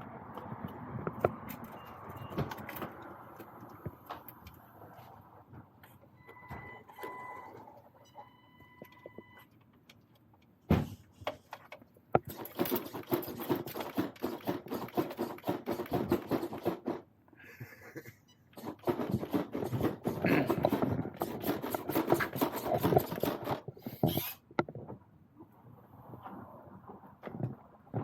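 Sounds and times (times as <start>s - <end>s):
rc truck motor rattling: 12.2s - 17.0s.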